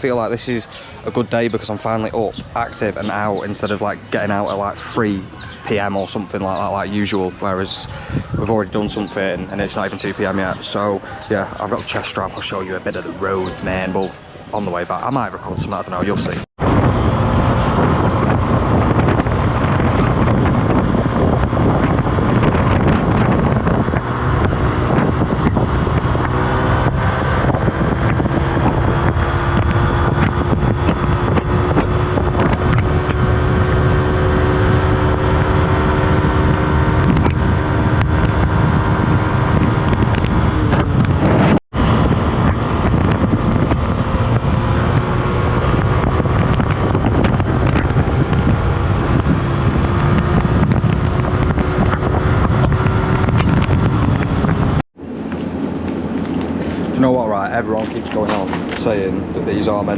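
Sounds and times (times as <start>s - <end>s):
wind buffeting microphone: 0.0s - 59.9s
motorbike engine: 16.0s - 59.9s.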